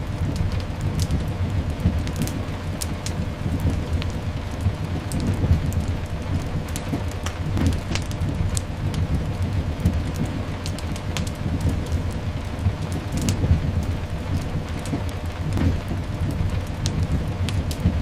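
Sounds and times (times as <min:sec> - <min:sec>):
continuous low rumble: 0:00.0 - 0:18.0
sharp crackles: 0:00.0 - 0:18.0
steady rain: 0:00.0 - 0:18.0.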